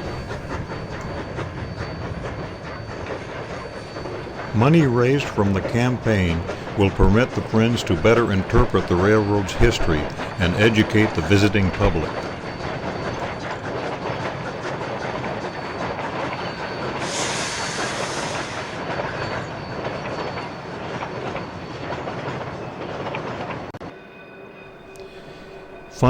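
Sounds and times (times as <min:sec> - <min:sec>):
train wheels clattering over rails: 0:00.0 - 0:23.8
hiss: 0:17.0 - 0:18.8.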